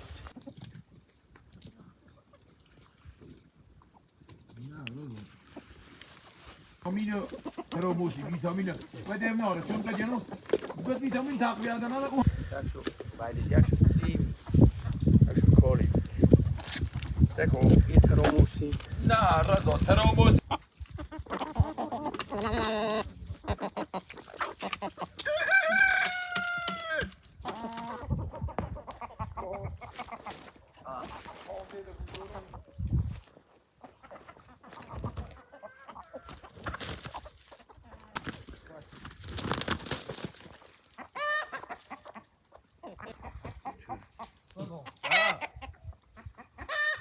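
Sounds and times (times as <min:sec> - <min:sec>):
chicken calls: 0:06.8 - 0:12.4, 0:20.2 - 0:31.6, 0:33.7 - 0:38.2, 0:39.4 - 0:47.0
chicken squawk: 0:20.5 - 0:30.5, 0:41.0 - 0:42.4, 0:44.8 - 0:47.0
rooster crowing: 0:25.2 - 0:27.1.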